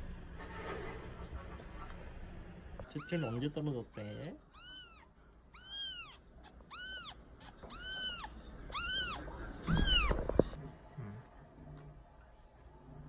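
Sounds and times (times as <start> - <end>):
kitten mewing: 2.8 - 10.6.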